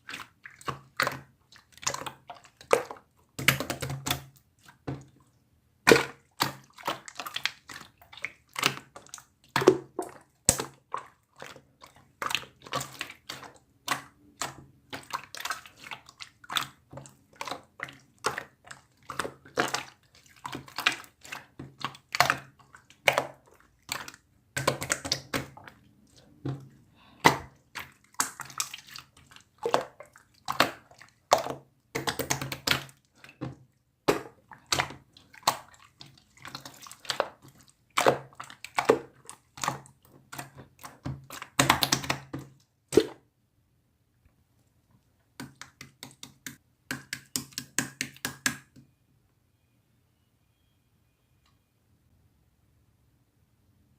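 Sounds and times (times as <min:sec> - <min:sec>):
slime squeezed with wet pops: 0:05.8 - 0:26.4, 0:27.1 - 0:43.2.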